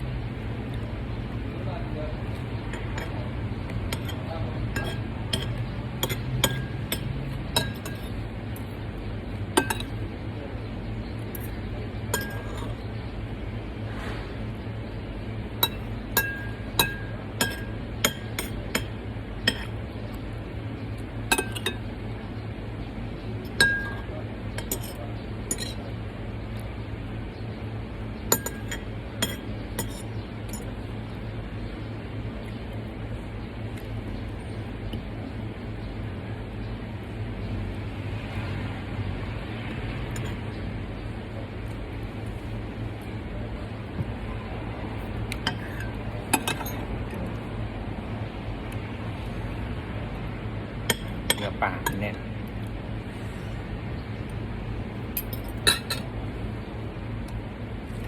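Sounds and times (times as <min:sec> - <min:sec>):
steady low hum: 0:00.0 - 0:58.0
cutlery clinking on plates: 0:02.7 - 0:03.2, 0:03.9 - 0:08.2, 0:11.4 - 0:12.8, 0:15.6 - 0:18.9, 0:23.5 - 0:25.9, 0:28.3 - 0:30.7, 0:45.5 - 0:46.8, 0:55.2 - 0:56.1.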